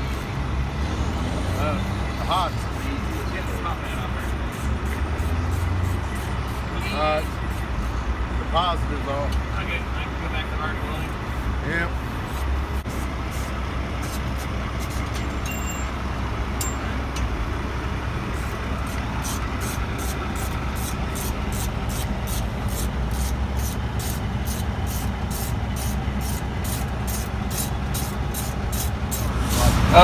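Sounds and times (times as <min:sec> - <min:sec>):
traffic rumble: 0:00.0 - 0:30.0
ratchet wrench clicking: 0:19.2 - 0:29.6.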